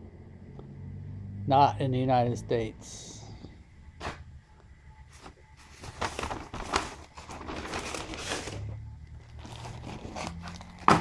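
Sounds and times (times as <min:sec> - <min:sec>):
packaging crinkling and rustling: 0:05.1 - 0:11.0
packaging crackles: 0:05.6 - 0:11.0.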